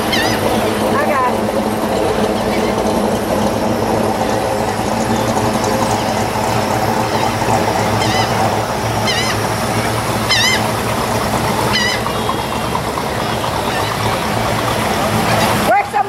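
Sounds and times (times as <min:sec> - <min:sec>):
bird squawking: 0:00.0 - 0:00.6, 0:02.3 - 0:02.9, 0:06.9 - 0:10.8, 0:11.5 - 0:14.3
classic car engines idling: 0:00.0 - 0:16.0.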